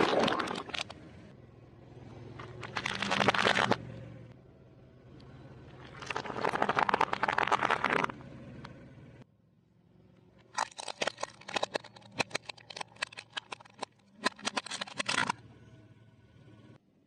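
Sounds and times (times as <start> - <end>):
rapid crunching and crackling: 2.4 - 3.9, 5.7 - 8.2, 10.4 - 15.4.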